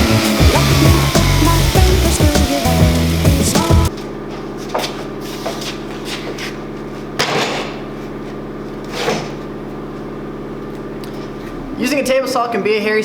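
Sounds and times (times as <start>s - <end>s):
machine motor humming: 0.0s - 4.2s.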